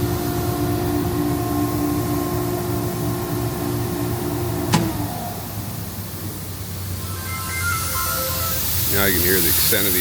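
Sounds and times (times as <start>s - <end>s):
air compressor humming: 8.2s - 10.0s.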